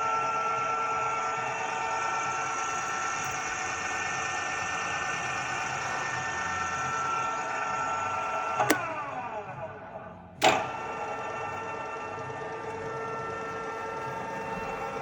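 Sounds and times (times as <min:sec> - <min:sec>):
pillar drill gear whine: 0:00.0 - 0:09.8, 0:10.4 - 0:15.0
drill switch click: 0:08.6 - 0:08.9, 0:10.4 - 0:10.7
loud clunk: 0:08.6 - 0:08.9, 0:10.4 - 0:10.8.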